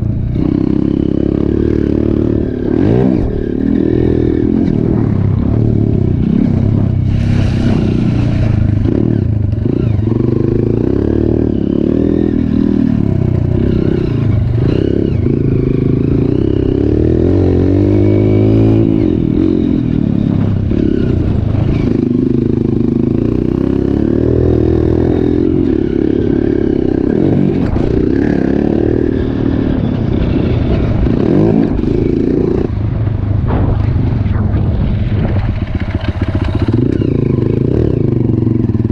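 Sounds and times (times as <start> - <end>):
motorcycle engine revving: 0.0 - 38.9
clatter: 29.8 - 38.9.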